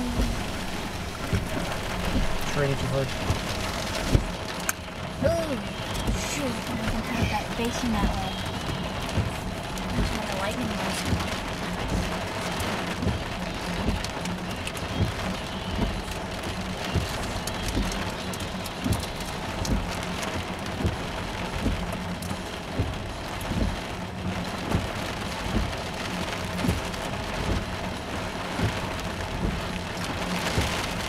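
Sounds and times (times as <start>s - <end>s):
heavy rain on a vehicle: 0.0s - 31.0s.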